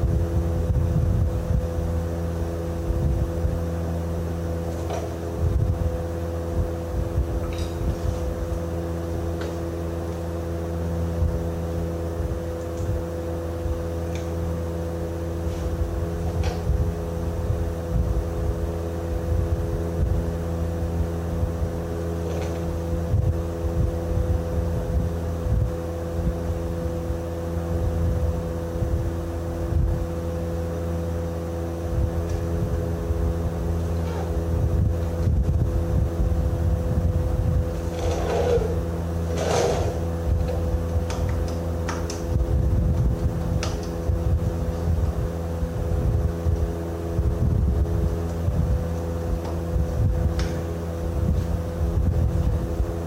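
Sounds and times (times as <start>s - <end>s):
machine running: 37.6s - 40.9s.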